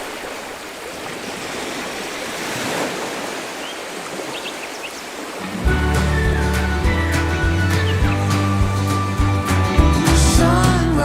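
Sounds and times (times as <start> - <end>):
ocean waves breaking on beach: 0.0 - 8.7.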